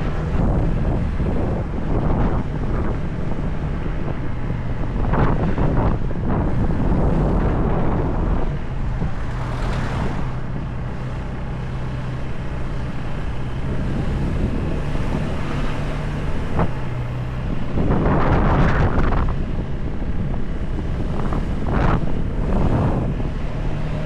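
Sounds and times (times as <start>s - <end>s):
motorcycle engine hum: 0.0s - 24.0s
wind noise on microphone: 0.0s - 24.0s.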